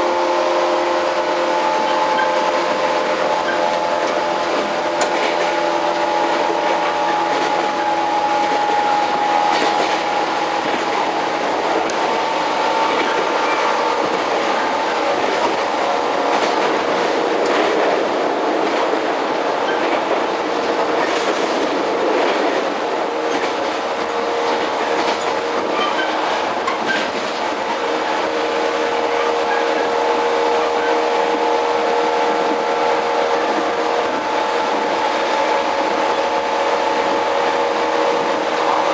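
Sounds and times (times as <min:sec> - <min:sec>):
train wheels rumbling: 0:00.0 - 0:38.9
wheels clicking over rail joints: 0:01.8 - 0:08.8, 0:23.3 - 0:27.8.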